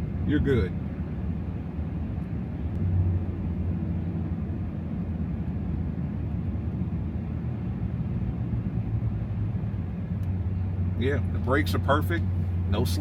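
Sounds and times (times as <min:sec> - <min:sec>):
pickup engine droning: 0:01.1 - 0:13.0.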